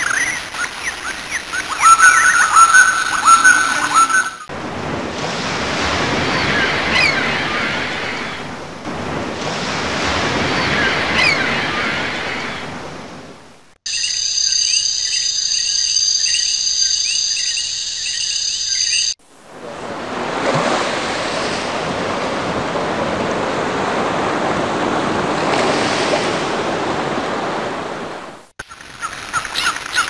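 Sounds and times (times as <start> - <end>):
ocean surf washing in: 0.0 - 13.8, 19.2 - 28.5
chirping insects: 13.9 - 19.2.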